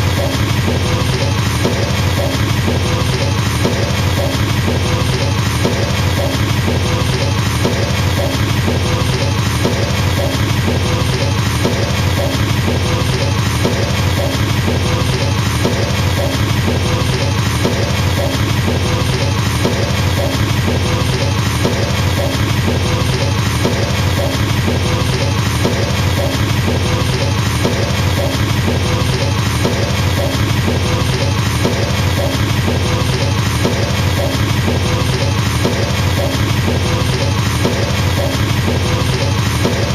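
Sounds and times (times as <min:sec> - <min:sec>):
fast double bass drum roll: 0:00.0 - 0:39.9.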